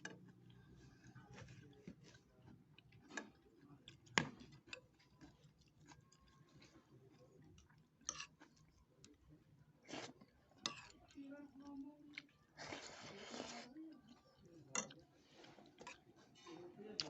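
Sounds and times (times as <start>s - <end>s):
person chewing: 0.3s - 9.2s, 9.8s - 16.4s.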